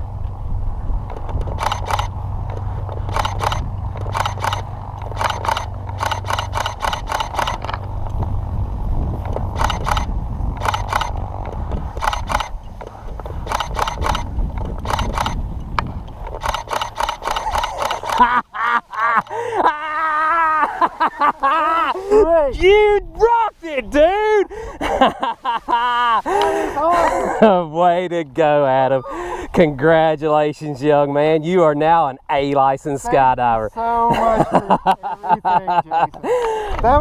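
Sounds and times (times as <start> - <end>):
wind on microphone: 0.0 - 18.3, 36.2 - 37.0.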